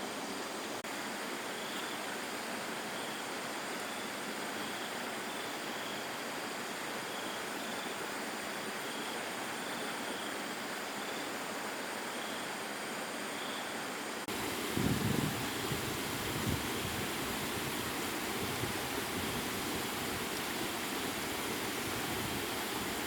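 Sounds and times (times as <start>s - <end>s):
low gusty rumbles: 14.3s - 20.3s.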